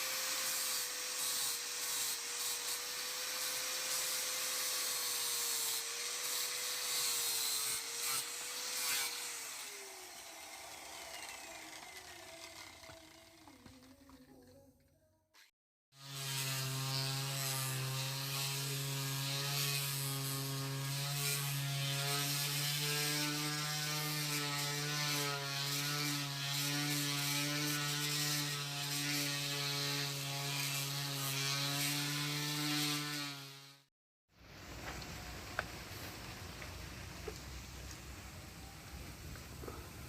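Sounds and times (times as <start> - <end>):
steel scraping on grinder: 0.0 - 14.6
electric grinder motor humming: 5.2 - 14.3.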